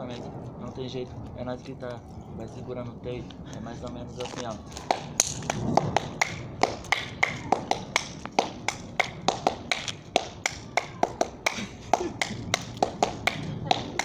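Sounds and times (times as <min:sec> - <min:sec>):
funk percussion beat: 0:04.8 - 0:14.0.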